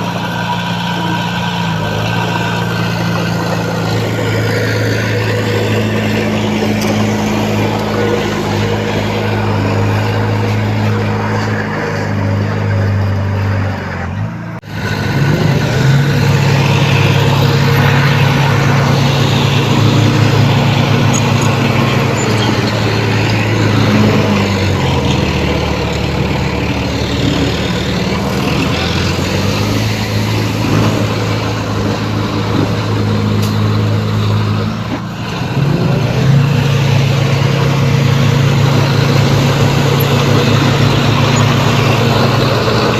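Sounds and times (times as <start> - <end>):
heavy diesel earthmovers working: 0.0 - 42.9.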